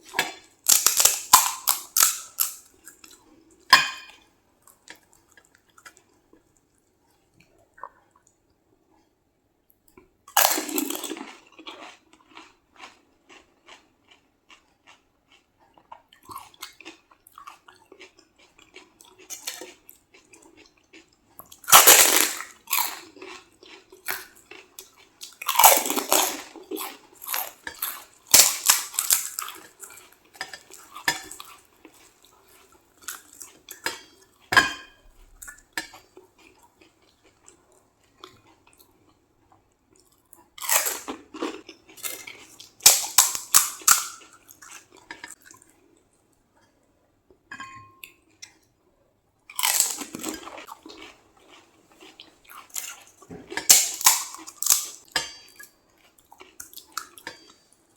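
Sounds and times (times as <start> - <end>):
crisp shells crunching when chewed: 0.4 - 3.2, 10.3 - 33.8, 40.0 - 45.4, 49.5 - 55.1
dishes and cutlery clinking: 3.7 - 4.3, 33.8 - 35.2, 47.5 - 48.2, 55.0 - 55.8, 57.2 - 57.7.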